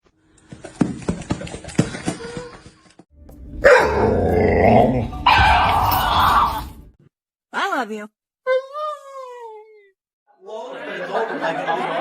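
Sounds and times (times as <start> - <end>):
dog barking and growling: 3.6 - 6.8.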